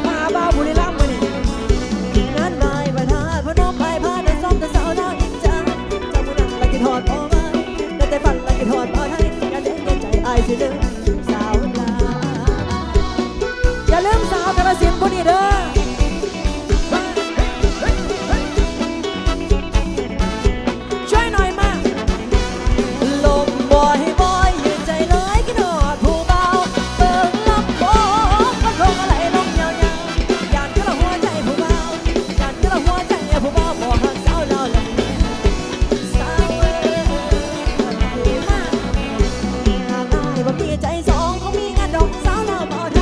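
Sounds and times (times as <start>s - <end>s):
drum kit beat: 0.0s - 43.0s
live band playing dance song: 0.0s - 43.0s
sliding melody line: 0.0s - 43.0s.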